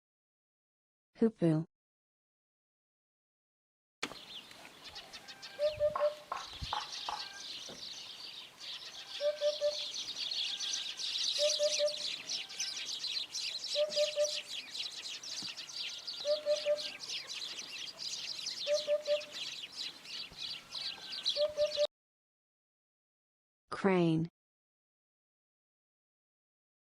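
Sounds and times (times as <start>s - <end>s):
hoopoe calling oop-oop-oop: 5.6s - 7.4s, 9.2s - 10.0s, 11.4s - 12.8s, 13.7s - 14.5s, 16.2s - 17.4s, 18.6s - 19.5s, 21.4s - 21.9s.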